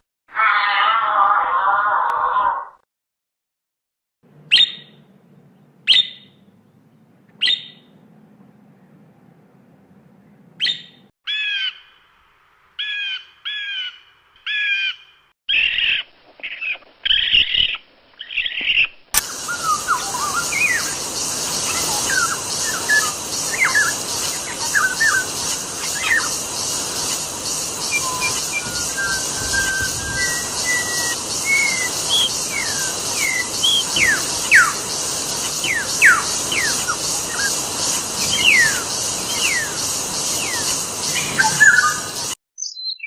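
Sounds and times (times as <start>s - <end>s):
fast-pulsing high hiss: 19.2s - 42.4s
bird whistling sliding notes: 19.2s - 43.0s.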